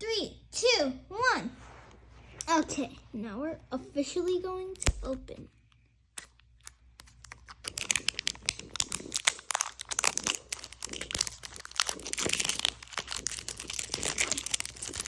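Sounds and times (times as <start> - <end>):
packaging being torn and crinkled: 6.2 - 15.0.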